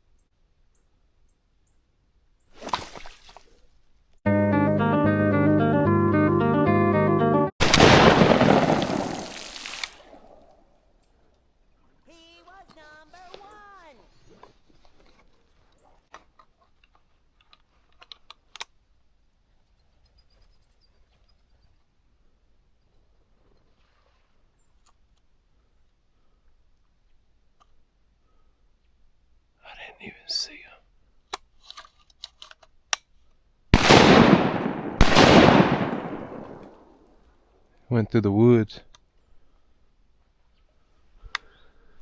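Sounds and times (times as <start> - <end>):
shotgun blasts with echo: 7.6 - 10.2, 33.8 - 36.9.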